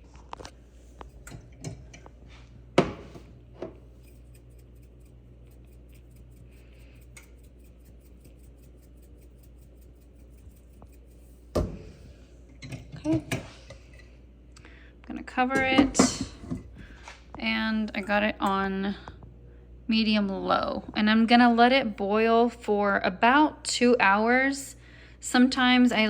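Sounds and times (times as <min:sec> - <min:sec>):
low steady hum: 0:00.0 - 0:26.0
clicks and knocks around a pot: 0:01.0 - 0:11.9, 0:12.5 - 0:14.1.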